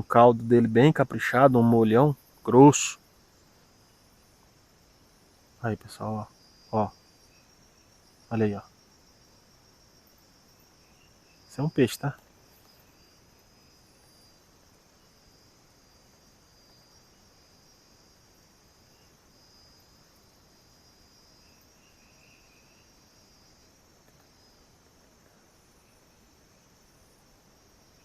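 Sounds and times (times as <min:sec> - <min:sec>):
crickets trilling: 0:00.0 - 0:28.0
low hiss: 0:00.0 - 0:28.0.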